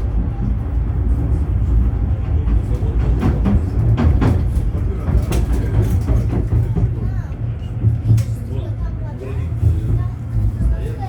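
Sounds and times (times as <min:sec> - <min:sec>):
wheels clicking on rails: 0:00.0 - 0:08.8
tram rumbling along track: 0:00.0 - 0:11.0.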